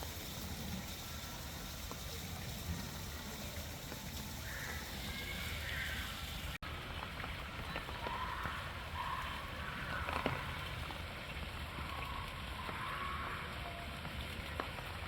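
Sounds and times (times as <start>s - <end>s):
water noise: 0.0s - 15.0s
wind: 0.0s - 15.0s
flamingos honking: 2.8s - 6.6s.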